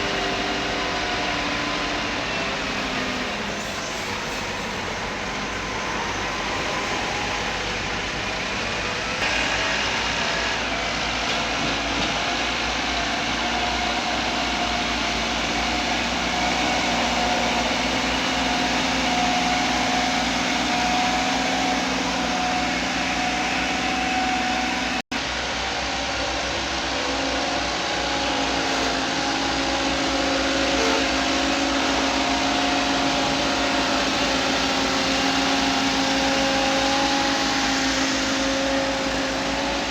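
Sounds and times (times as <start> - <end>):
heavy vehicle engine running: 0.0 - 39.9.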